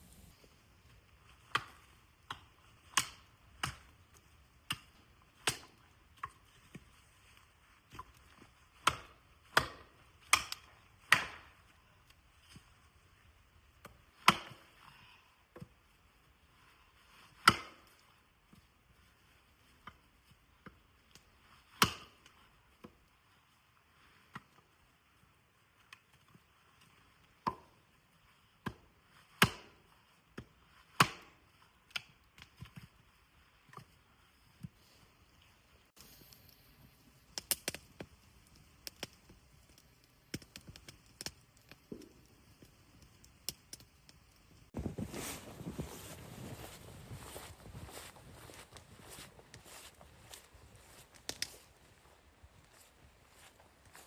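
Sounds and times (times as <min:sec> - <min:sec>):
wood being chopped: 0:08.8 - 0:11.5, 0:14.2 - 0:14.6, 0:17.4 - 0:17.9, 0:21.8 - 0:22.2, 0:28.6 - 0:29.8, 0:31.0 - 0:31.4.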